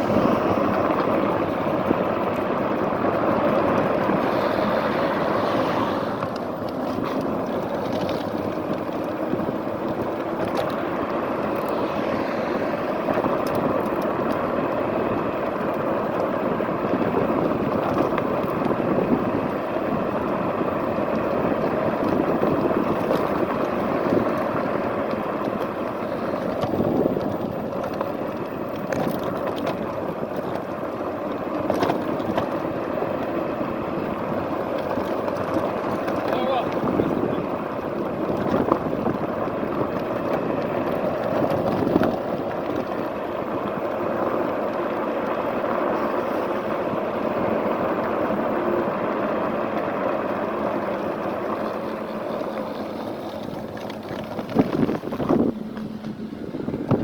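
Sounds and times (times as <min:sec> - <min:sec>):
wind rush: 0:00.0 - 0:15.2, 0:25.6 - 0:29.1, 0:52.8 - 0:57.0
faint clicks from bumps: 0:00.0 - 0:57.0
road noise: 0:00.0 - 0:57.0.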